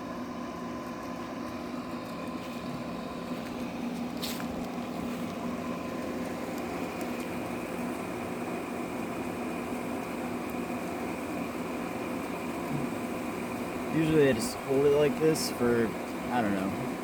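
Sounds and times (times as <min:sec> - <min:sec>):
bees buzzing: 0:04.8 - 0:17.0.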